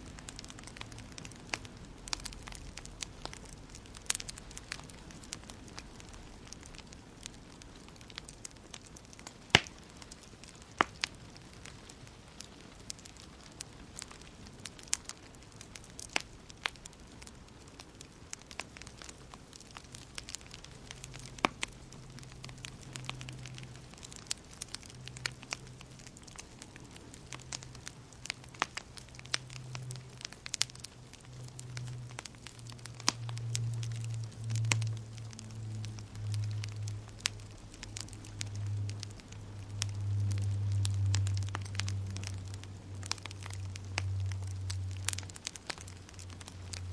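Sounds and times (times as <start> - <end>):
fire crackling and popping: 0.0 - 46.9
low hum: 27.6 - 46.9.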